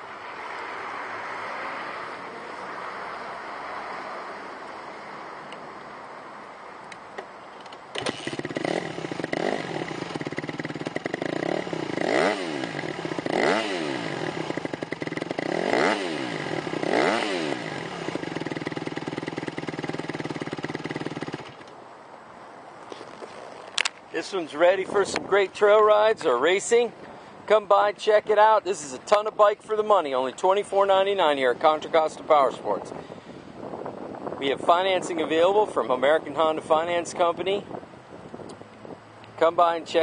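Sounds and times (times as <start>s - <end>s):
motorcycle engine kickstart: 7.6s - 11.4s
motorcycle engine idling and revving: 7.9s - 21.7s.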